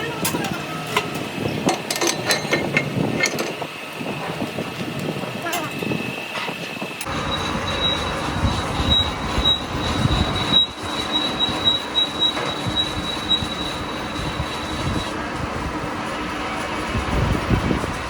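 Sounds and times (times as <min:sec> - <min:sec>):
workshop clatter: 0:00.0 - 0:18.0
pulsing metallic squeal: 0:05.6 - 0:15.2.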